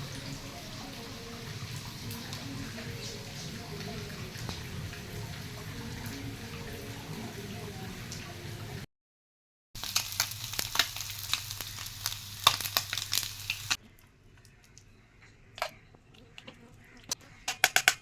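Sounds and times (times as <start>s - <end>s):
food sizzling in hot oil: 9.8s - 13.8s.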